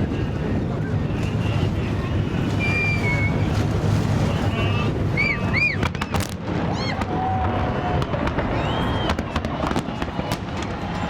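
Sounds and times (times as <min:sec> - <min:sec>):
fireworks whistling: 0:05.1 - 0:07.0, 0:08.0 - 0:11.0
fireworks bangs: 0:05.7 - 0:11.0.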